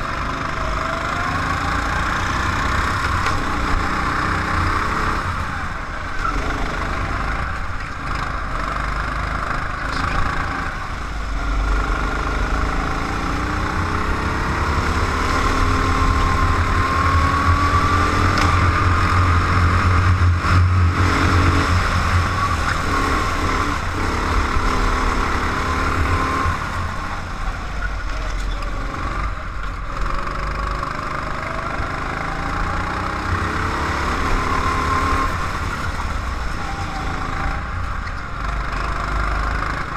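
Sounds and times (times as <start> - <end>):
wind and road noise: 0.0 - 39.9
race car engine revving: 8.1 - 27.3.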